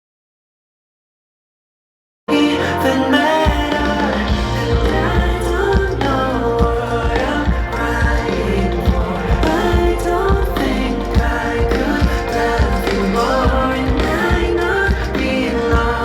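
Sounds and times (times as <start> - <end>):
band accompaniment: 2.3 - 16.0
person singing: 2.3 - 16.0
steady drum beat: 3.3 - 16.0.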